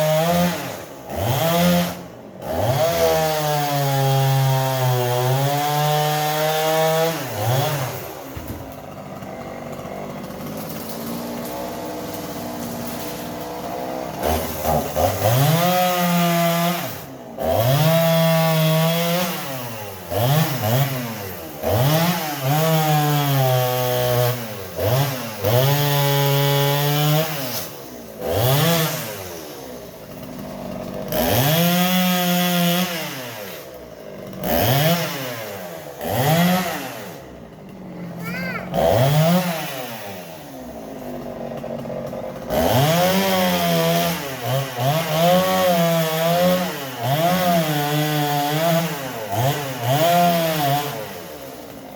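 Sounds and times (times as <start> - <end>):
chainsaw idling and revving: 0.0 - 51.9.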